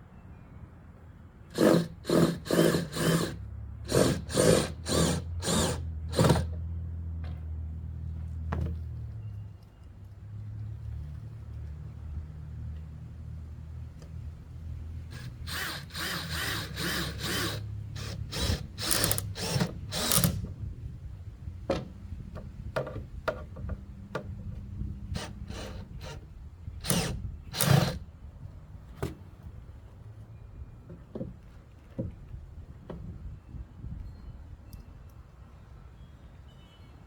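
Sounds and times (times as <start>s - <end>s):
power drill driving screws: 1.5s - 6.6s, 15.1s - 20.4s, 25.2s - 26.2s, 26.8s - 28.0s.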